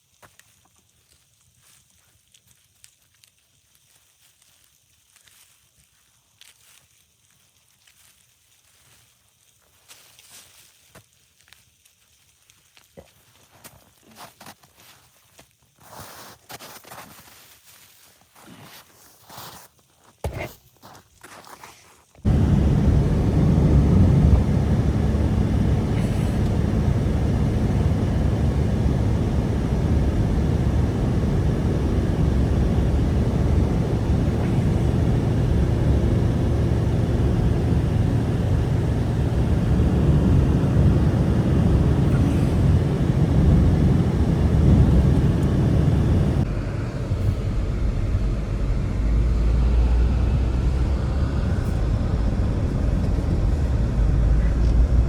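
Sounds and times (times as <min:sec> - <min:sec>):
strong blizzard wind blowing: 0:22.3 - 0:55.0.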